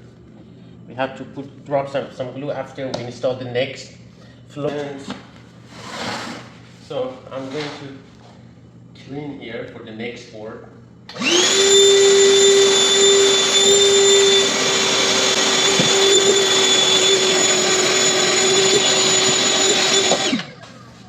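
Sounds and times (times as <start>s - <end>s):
vacuum cleaner motor whine: 11.1s - 21.0s.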